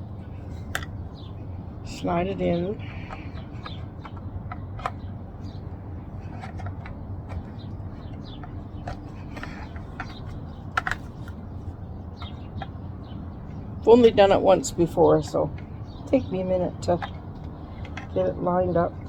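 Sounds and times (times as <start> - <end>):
low background hum: 0.0 - 19.0
plastic clicks and knocks: 3.1 - 5.1, 6.2 - 11.4, 16.8 - 18.2.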